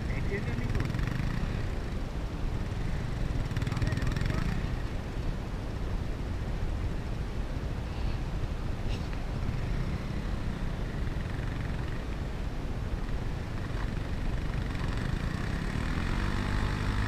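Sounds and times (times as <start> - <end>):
motorcycle engine revving: 0.0 - 1.9, 2.6 - 5.0, 13.2 - 17.0.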